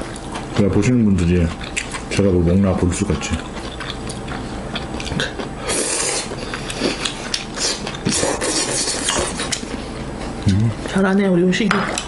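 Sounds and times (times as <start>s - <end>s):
crunchy chewing: 1.3s - 2.3s, 3.1s - 10.6s.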